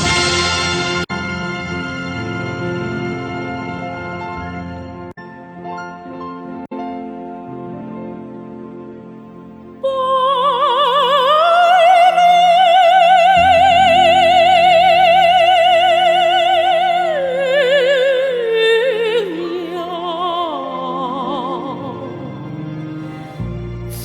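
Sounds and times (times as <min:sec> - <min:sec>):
woman singing with vibrato: 0:09.8 - 0:24.0.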